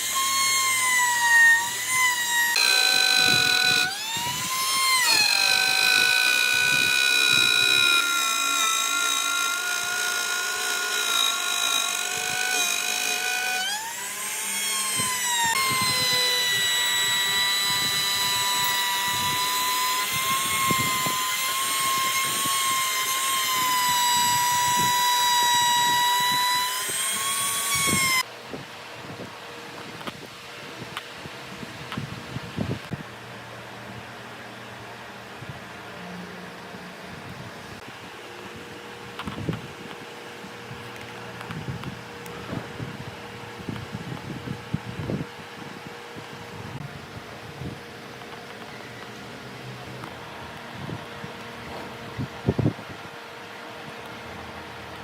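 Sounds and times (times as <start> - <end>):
electric power tool motor whining: 0.0 - 28.3.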